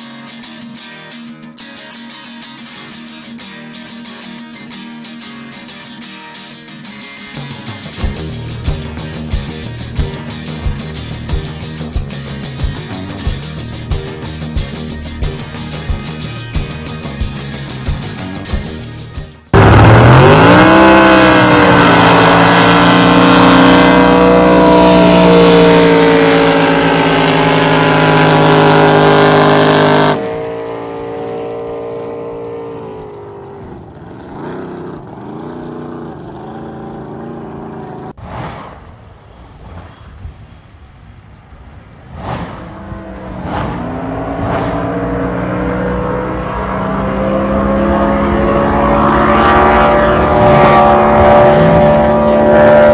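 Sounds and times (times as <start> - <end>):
boat engine at full throttle: 19.5 - 38.2, 42.4 - 52.9.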